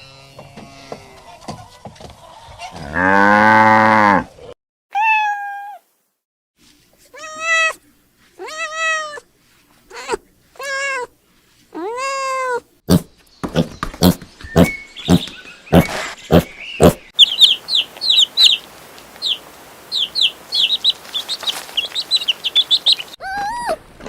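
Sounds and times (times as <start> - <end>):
cow mooing: 2.8 - 4.3
cat meowing: 5.0 - 5.8, 7.2 - 7.8, 8.4 - 9.2
hen clucking: 13.6 - 23.4.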